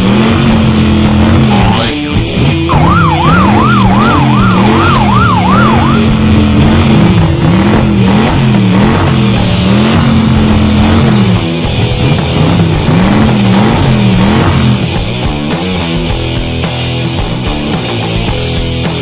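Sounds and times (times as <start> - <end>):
rock music: 0.0 - 19.0
police siren wail: 2.6 - 6.6.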